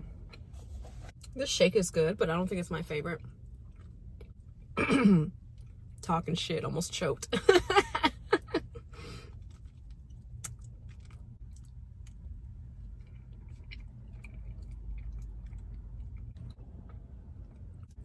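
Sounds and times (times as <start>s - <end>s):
steady low hum: 0.0s - 18.0s
chewing: 3.2s - 4.7s, 9.3s - 18.0s
person laughing: 7.4s - 8.9s.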